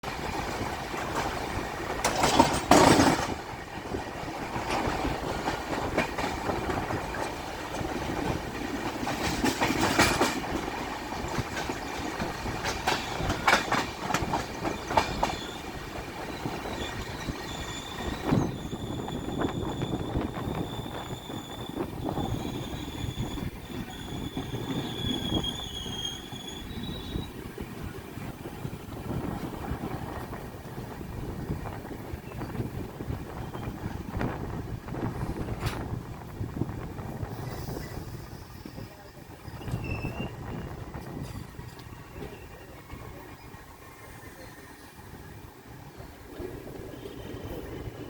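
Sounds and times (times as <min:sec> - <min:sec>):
train wheels clattering: 0:00.0 - 0:27.4
high wheel squeal: 0:16.3 - 0:27.4, 0:37.4 - 0:40.7.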